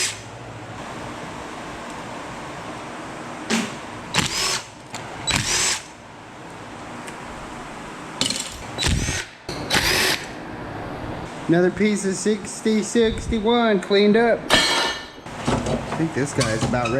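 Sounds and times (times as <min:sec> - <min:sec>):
power drill motor whining: 0:04.2 - 0:05.8, 0:08.8 - 0:10.3.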